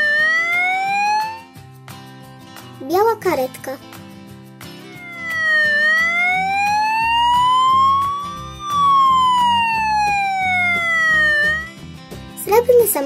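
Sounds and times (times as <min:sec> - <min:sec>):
cartoon siren wail: 0:00.0 - 0:01.5, 0:04.8 - 0:11.7
children's music with steady beat: 0:00.0 - 0:13.0.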